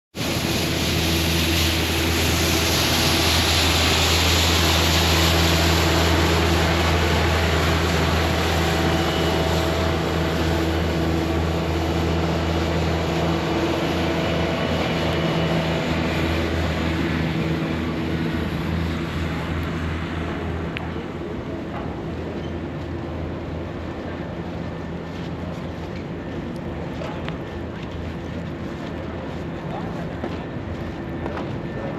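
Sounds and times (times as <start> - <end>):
large engine humming: 0.2 - 31.9.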